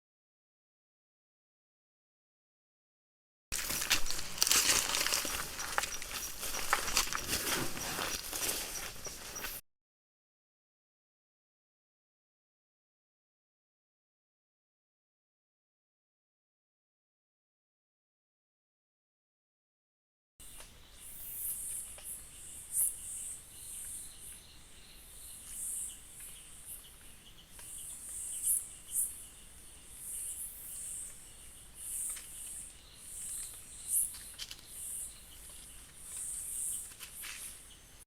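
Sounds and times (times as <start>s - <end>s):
high-pitched insect song pulses: 20.4s - 38.0s.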